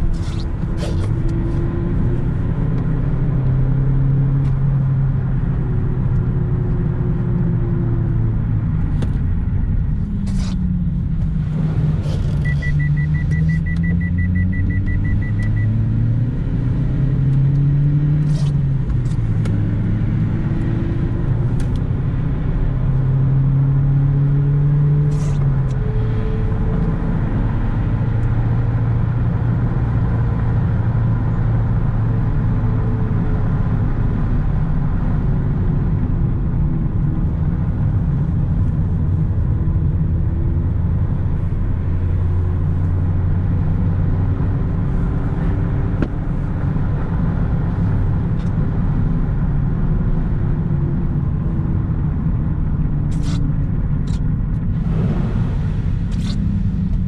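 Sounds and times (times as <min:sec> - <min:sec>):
road rumble: 0:00.0 - 0:57.0
rapid high beeps: 0:12.4 - 0:15.7.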